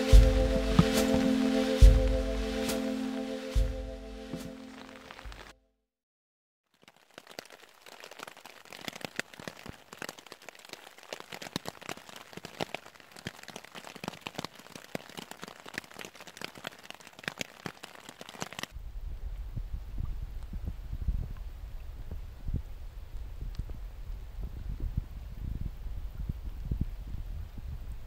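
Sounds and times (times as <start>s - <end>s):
rain on a tarp: 4.4s - 5.6s, 6.6s - 18.8s.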